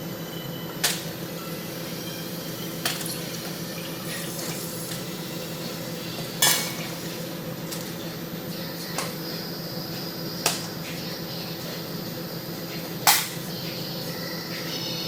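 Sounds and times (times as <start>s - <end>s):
furnace machine humming: 0.0s - 15.0s
sharp metallic clanks: 6.4s - 7.9s, 13.0s - 13.4s.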